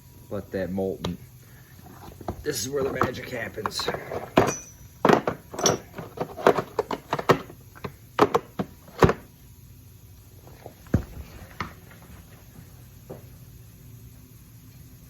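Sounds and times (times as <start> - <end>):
sharp knocks and clicks: 2.2 - 9.3.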